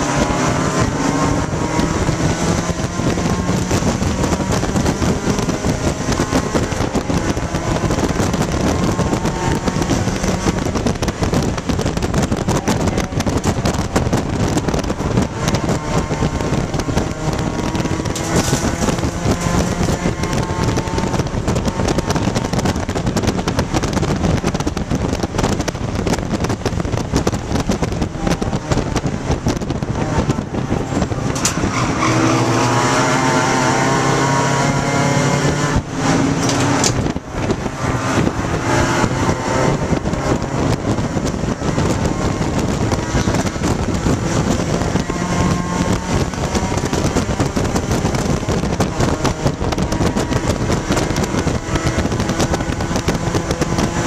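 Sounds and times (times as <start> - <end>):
car engine pulling hard: 0.0 - 54.0
wind and road noise: 0.0 - 54.0.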